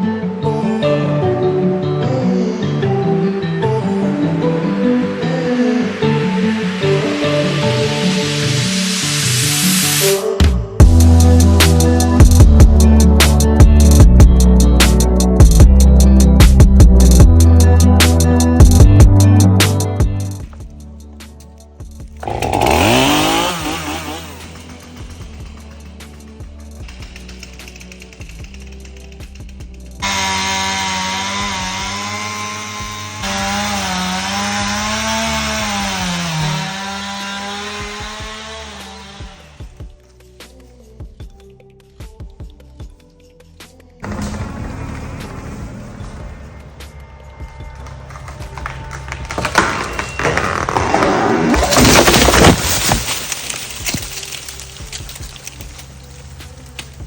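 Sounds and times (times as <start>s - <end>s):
electronic bass and drum beat: 10.8s - 20.8s
chainsaw cutting timber: 22.1s - 29.1s, 30.0s - 39.8s, 48.1s - 57.0s.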